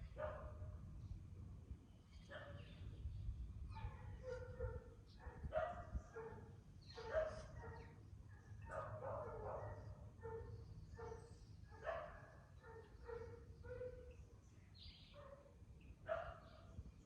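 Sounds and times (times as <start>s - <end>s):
dog barking: 0.2s - 0.6s, 2.3s - 2.6s, 3.7s - 14.2s, 15.2s - 16.6s.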